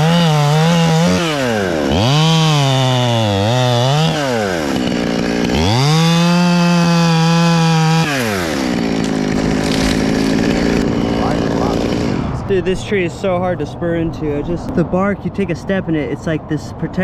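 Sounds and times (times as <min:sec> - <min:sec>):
chainsaw revving and cutting wood: 0:00.0 - 0:12.5.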